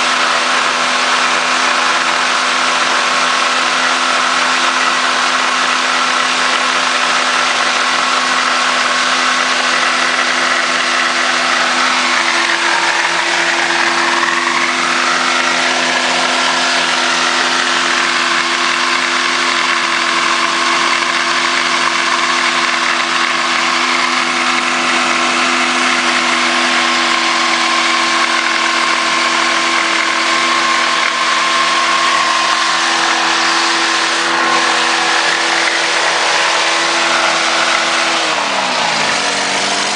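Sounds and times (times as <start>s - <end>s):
car engine running at high speed: 0.0s - 39.9s.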